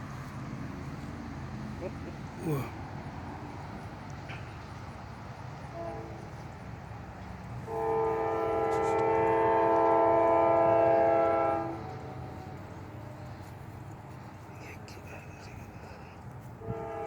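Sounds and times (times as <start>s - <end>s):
low rumble of passing train: 0.0s - 17.0s
locomotive air horn chord: 5.7s - 6.3s, 7.6s - 13.2s, 16.6s - 17.0s.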